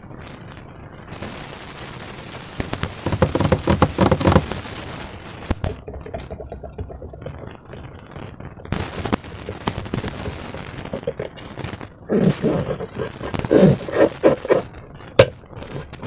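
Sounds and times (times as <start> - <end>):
rapid crackling pops: 0.0 - 16.0
slime squishing by hand: 2.9 - 4.7, 5.6 - 11.6.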